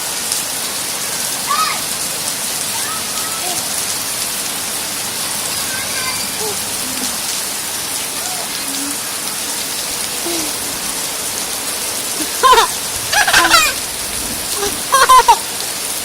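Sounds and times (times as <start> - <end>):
heavy rain hissing: 0.0 - 16.0
children shouting: 1.4 - 1.9, 5.5 - 7.2, 12.2 - 13.9.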